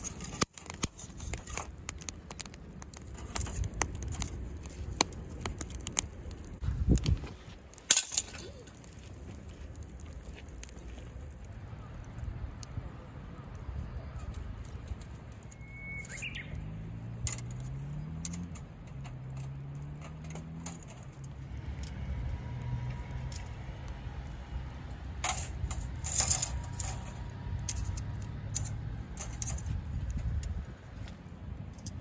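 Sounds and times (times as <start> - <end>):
low fire rumble: 0.0 - 32.0
wood fire crackling and popping: 0.0 - 32.0
whistle-like bird call: 15.6 - 16.5.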